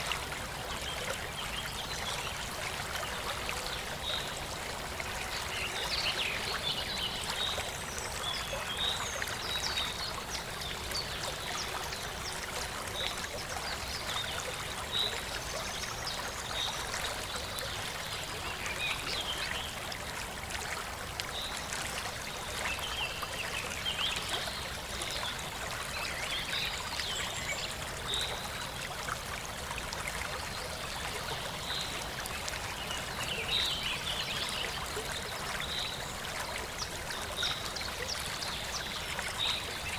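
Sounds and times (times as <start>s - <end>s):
small waterfall rushing and trickling: 0.0s - 39.9s.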